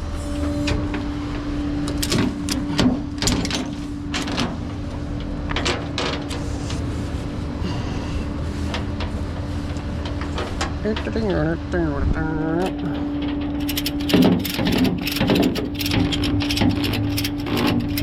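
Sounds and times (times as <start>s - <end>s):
vehicle engine humming: 0.0s - 18.0s
sharp metallic clicks: 12.6s - 18.0s.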